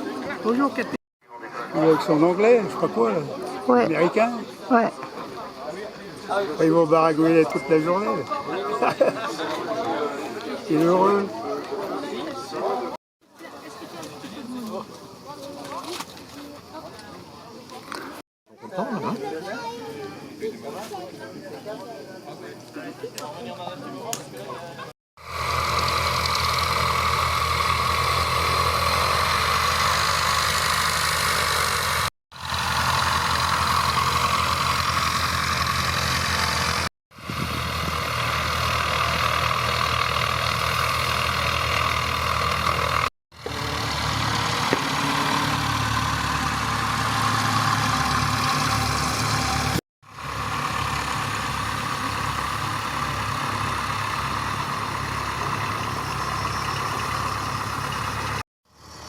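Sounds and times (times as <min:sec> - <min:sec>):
light aircraft piston engine: 0:25.2 - 0:59.0.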